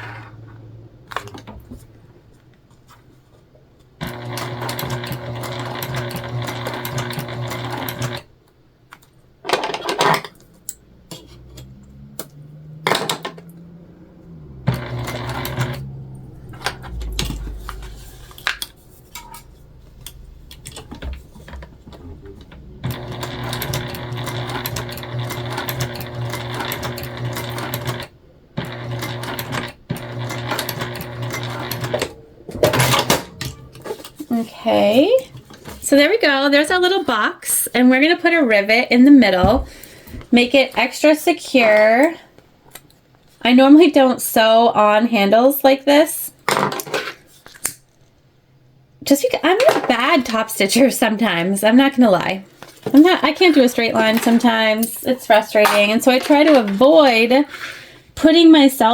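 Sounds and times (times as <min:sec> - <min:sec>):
sewing machine stitching: 0:04.0 - 0:08.3, 0:14.3 - 0:33.6.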